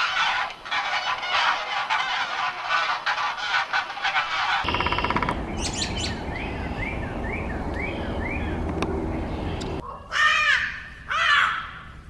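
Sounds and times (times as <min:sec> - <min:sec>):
poultry calling in chorus: 0:00.0 - 0:05.0
buzzy bird call: 0:00.0 - 0:08.6.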